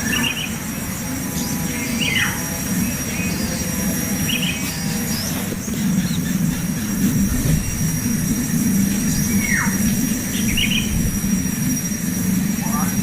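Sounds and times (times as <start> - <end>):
bird chirps: 0.0 - 8.0, 8.9 - 13.0
loud steady low rumble: 0.0 - 13.0
thin high whine: 0.0 - 13.0.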